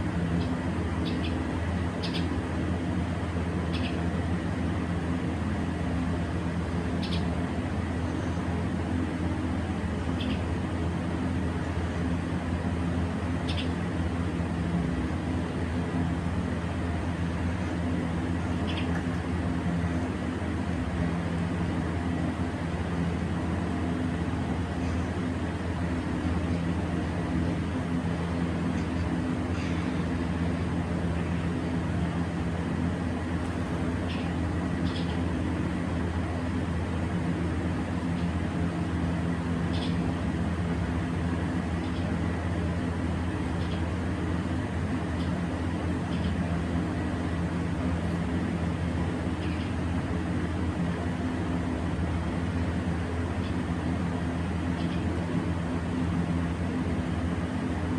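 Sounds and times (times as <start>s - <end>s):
low hum with hiss: 0.0s - 57.9s
bird chirps: 1.0s - 1.4s, 2.0s - 2.3s, 3.7s - 4.0s, 7.0s - 7.3s, 13.5s - 13.8s.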